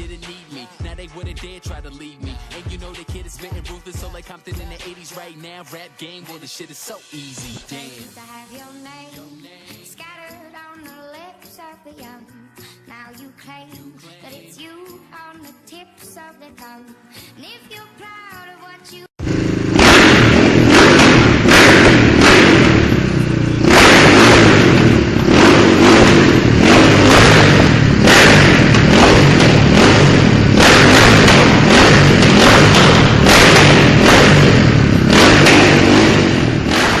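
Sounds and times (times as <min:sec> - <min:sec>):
motorcycle engine revving: 0:19.2 - 0:37.0.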